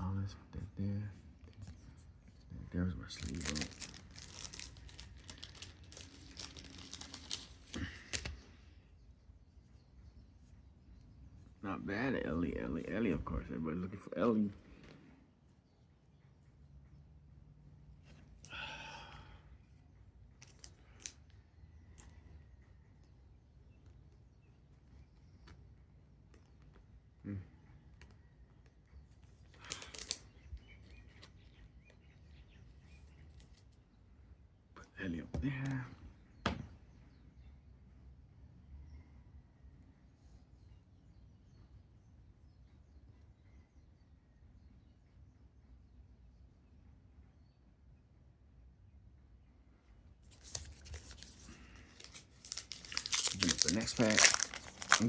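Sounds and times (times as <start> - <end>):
trading cards rustling: 1.4 - 8.6, 20.4 - 21.3, 29.5 - 31.5, 50.2 - 55.0
plastic sleeve crinkling: 3.0 - 8.4, 29.6 - 31.2, 50.2 - 55.0.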